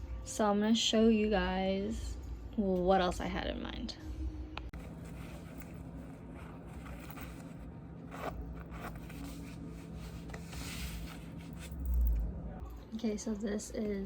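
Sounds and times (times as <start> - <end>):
fabric rustling: 4.7 - 12.2
zipper: 4.8 - 12.0.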